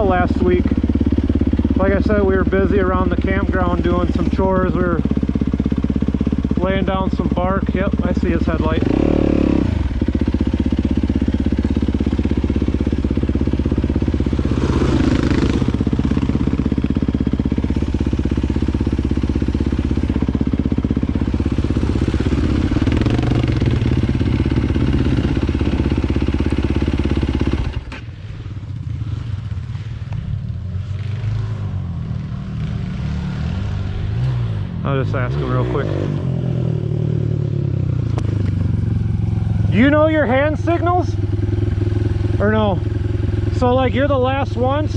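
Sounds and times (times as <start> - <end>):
dirt bike engine running: 0.0 - 44.9.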